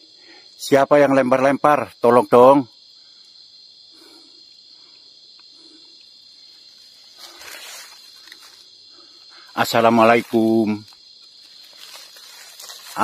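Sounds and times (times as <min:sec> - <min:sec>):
crickets and night insects chirping: 0:00.0 - 0:13.0
rustling noise: 0:06.7 - 0:08.7, 0:09.9 - 0:13.0.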